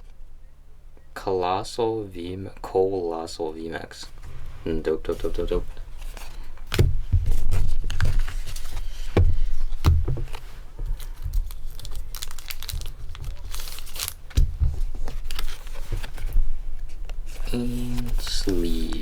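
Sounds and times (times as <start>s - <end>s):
plastic crinkling and rustling: 4.0s - 19.0s
low bumps on table: 6.6s - 8.3s, 9.1s - 11.0s, 14.3s - 15.0s.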